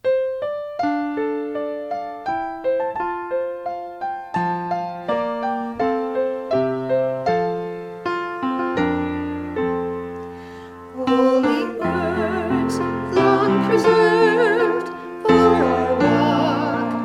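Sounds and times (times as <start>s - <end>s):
slow piano melody: 0.0s - 17.0s
person singing with vibrato: 10.9s - 17.0s.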